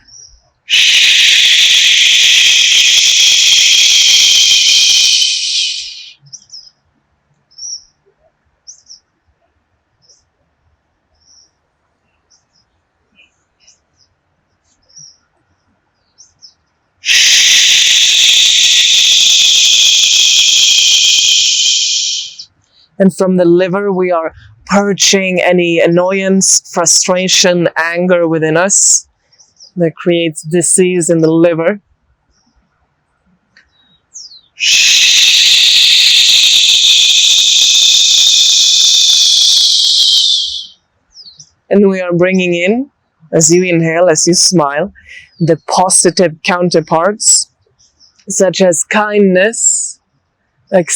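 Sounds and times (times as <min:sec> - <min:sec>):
faint bird chirps: 0:00.0 - 0:06.8, 0:07.5 - 0:09.1, 0:11.2 - 0:23.0, 0:33.6 - 0:41.6.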